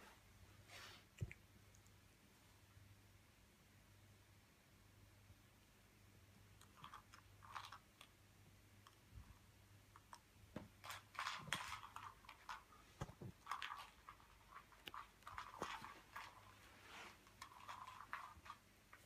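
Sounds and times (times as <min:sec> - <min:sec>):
cat crunching dry treats: 0:13.3 - 0:16.7.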